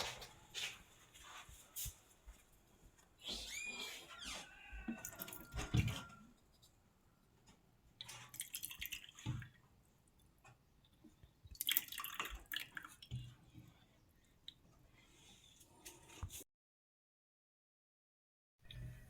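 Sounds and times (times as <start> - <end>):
water splashing and dripping: 5.0 - 6.0, 8.0 - 9.6, 11.5 - 13.3.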